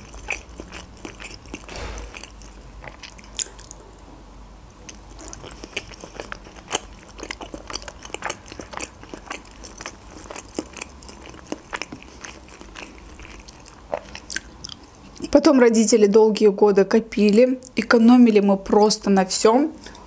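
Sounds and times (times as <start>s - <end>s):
person chewing dumplings: 0.0s - 3.8s, 4.9s - 15.3s.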